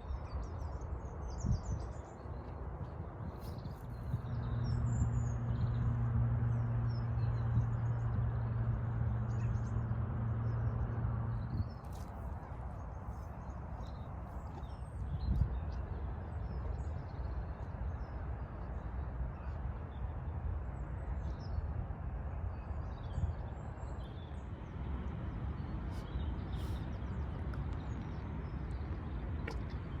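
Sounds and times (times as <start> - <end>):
steady low rumble: 1.0 - 19.6.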